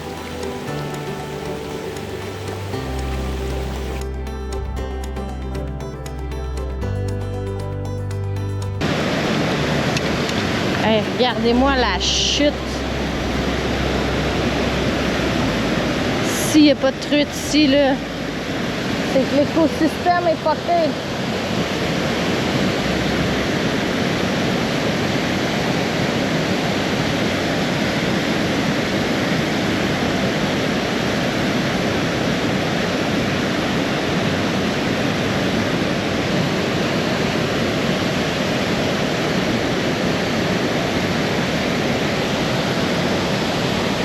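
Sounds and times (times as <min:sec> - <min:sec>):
water pouring over waterfall: 0:00.0 - 0:04.1, 0:08.8 - 0:16.4.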